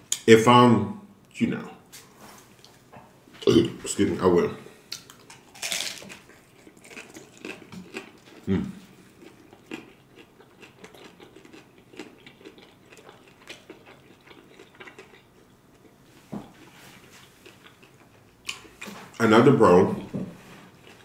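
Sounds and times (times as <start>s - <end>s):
crunchy wet chewing: 4.9s - 19.2s, 20.7s - 21.0s
crunchy bite into taco shell: 5.0s - 15.3s.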